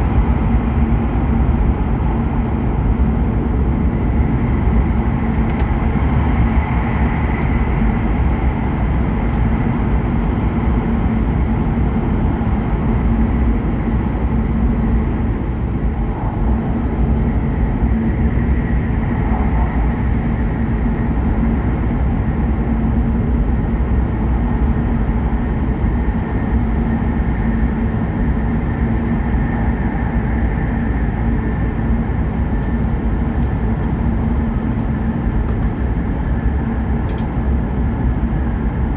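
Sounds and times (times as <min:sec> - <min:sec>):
train rumble inside carriage: 0:00.0 - 0:38.9.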